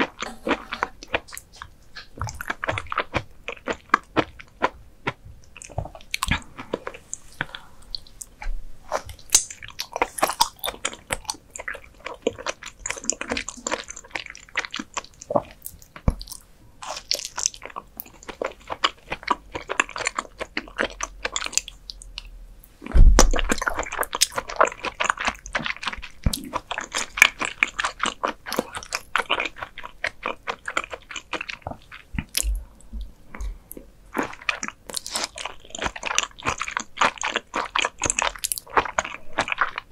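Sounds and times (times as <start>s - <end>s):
wet chewing smacks and clicks: 0.0s - 22.3s, 23.3s - 32.6s, 33.3s - 39.9s.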